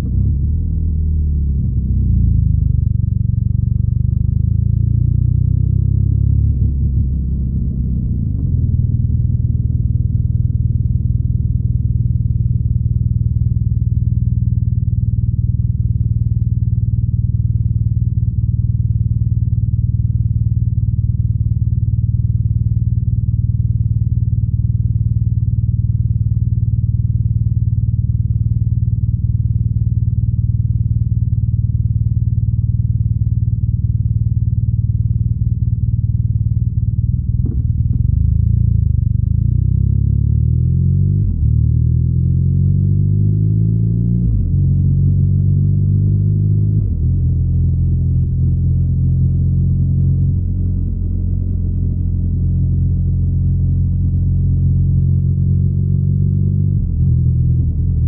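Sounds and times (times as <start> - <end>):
motorcycle engine droning: 0.0 - 42.0.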